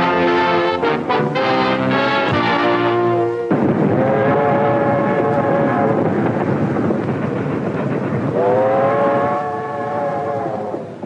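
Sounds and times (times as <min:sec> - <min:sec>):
train whistle chord: 0:00.0 - 0:06.1, 0:08.3 - 0:11.0
train rumbling: 0:00.0 - 0:11.0.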